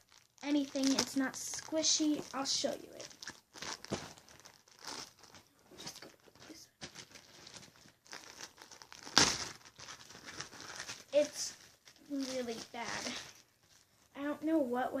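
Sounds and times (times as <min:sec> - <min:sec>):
slime crinkling and rustling: 0:00.0 - 0:15.0
loud crackle: 0:06.8 - 0:13.8.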